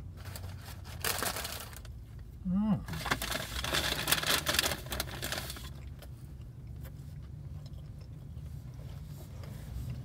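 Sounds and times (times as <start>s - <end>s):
crackly paper rustle: 0.1s - 2.0s, 2.9s - 5.8s
person chewing: 5.6s - 8.9s.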